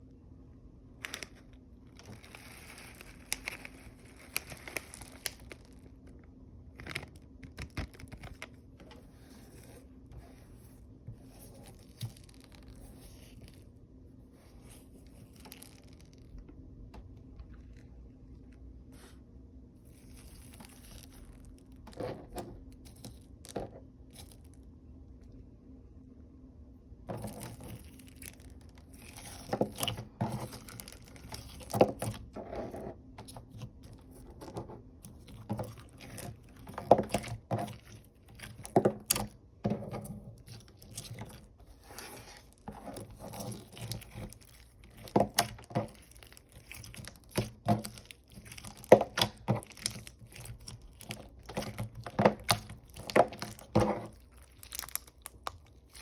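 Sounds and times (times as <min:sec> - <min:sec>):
slime with foam beads crunching: 0:01.0 - 0:06.0, 0:11.3 - 0:13.7, 0:14.6 - 0:16.4, 0:19.9 - 0:24.6, 0:27.1 - 0:56.0.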